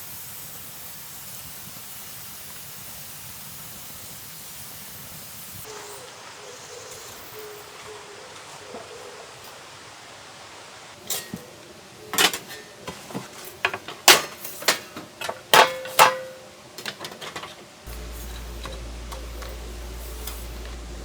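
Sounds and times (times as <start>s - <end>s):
metal cookware clanking: 11.0s - 21.0s
steady low hum: 17.9s - 21.0s.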